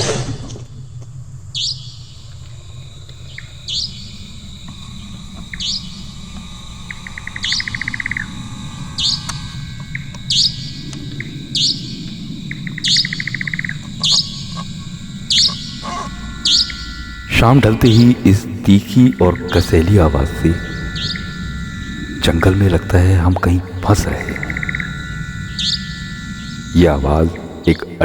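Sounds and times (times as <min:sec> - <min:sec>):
nightjar calling: 0:01.5 - 0:28.0
rattling bird call: 0:09.0 - 0:28.0.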